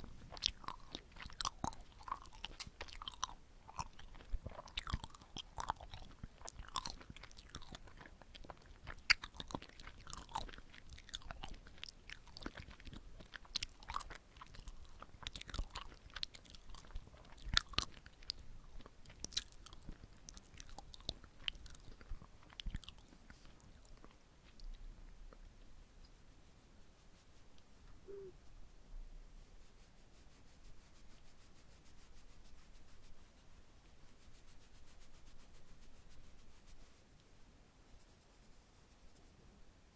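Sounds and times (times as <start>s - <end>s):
biting: 0.0s - 24.8s
chewing sticky rice cake: 0.0s - 26.2s.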